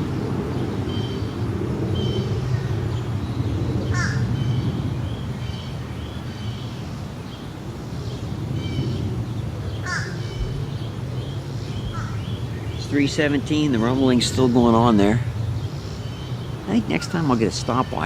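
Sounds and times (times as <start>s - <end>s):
jet engines rumbling: 0.0s - 18.0s
small birds chirping: 0.0s - 18.0s
crow cawing: 3.9s - 4.3s, 9.8s - 10.3s, 11.9s - 12.3s.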